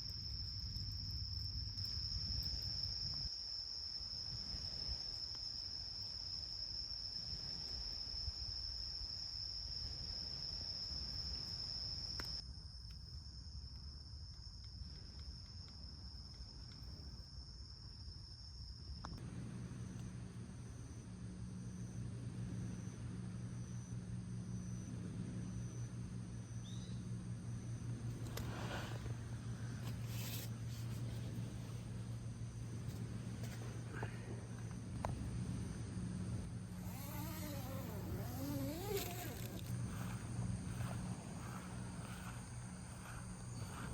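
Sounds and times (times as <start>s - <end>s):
crickets chirping: 0.0s - 43.9s
low steady hum: 19.0s - 43.9s.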